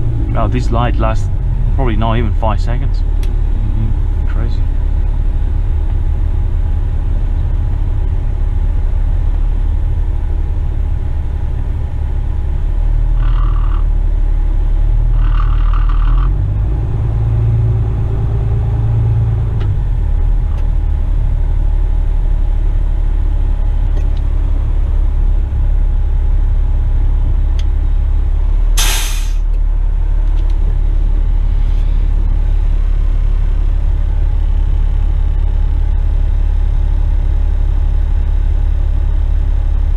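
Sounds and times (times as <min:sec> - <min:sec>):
truck diesel engine droning: 0:00.0 - 0:39.9
air brake hiss: 0:28.8 - 0:29.4.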